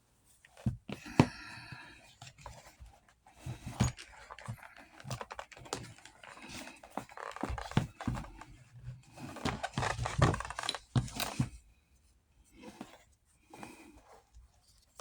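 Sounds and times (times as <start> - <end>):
clicks and knocks on leather: 3.4 - 11.6.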